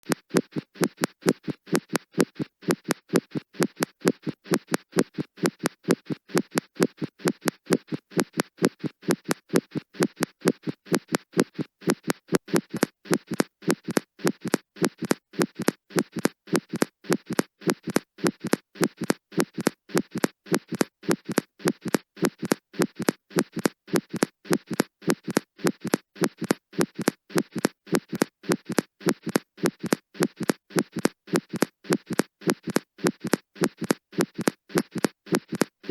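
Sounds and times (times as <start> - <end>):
heartbeat through stethoscope: 0.0 - 35.9.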